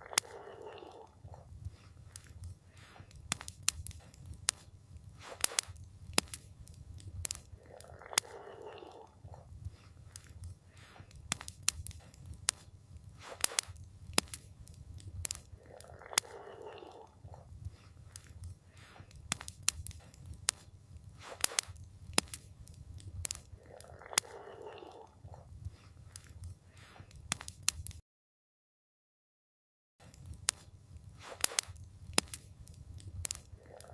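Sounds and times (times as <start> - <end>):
campfire crackling and popping: 0.0 - 28.0, 30.0 - 33.9.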